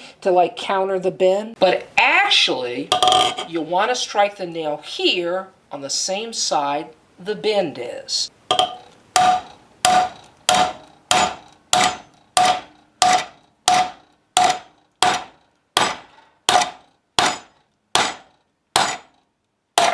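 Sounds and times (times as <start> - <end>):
hammer striking nail: 8.5 - 19.2.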